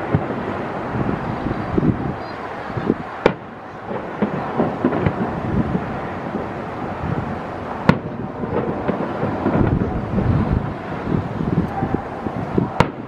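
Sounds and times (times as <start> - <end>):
sharp firework bang: 2.8 - 6.5, 7.8 - 13.0
distant firework booms: 2.8 - 13.0.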